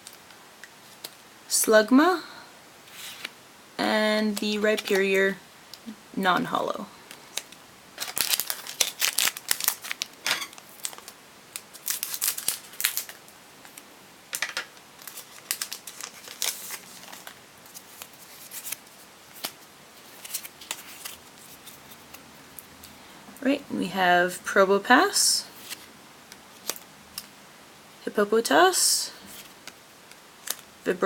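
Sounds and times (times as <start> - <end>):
cards rustling: 4.3 - 5.1, 7.1 - 22.7, 26.5 - 27.3, 29.2 - 30.6
foil crinkling and tearing: 7.3 - 13.8, 15.0 - 22.2, 29.3 - 30.7.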